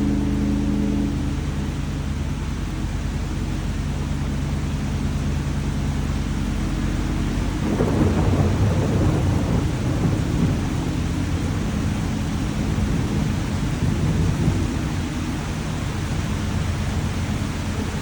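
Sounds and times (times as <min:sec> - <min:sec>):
steady rain: 0:00.0 - 0:18.0
low rumble of thunder: 0:05.8 - 0:18.0.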